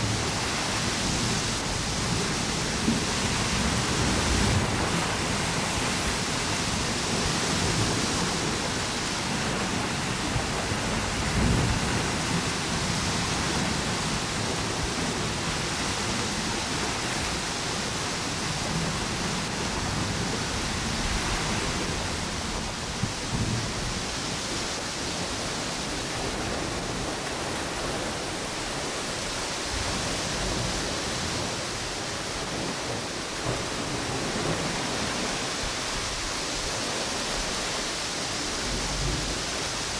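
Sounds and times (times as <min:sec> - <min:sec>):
ocean waves breaking: 0:00.0 - 0:39.9
wind through palm trees: 0:00.0 - 0:39.9.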